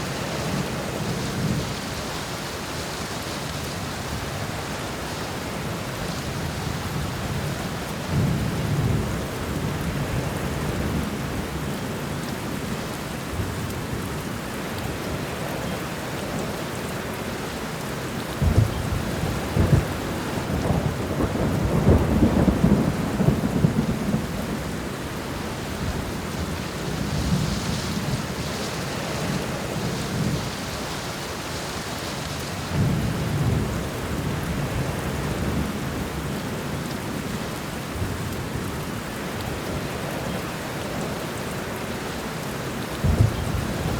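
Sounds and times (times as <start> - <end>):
steady rain: 0.0 - 43.9
rolling thunder: 18.4 - 25.0, 32.6 - 36.3, 43.0 - 43.9.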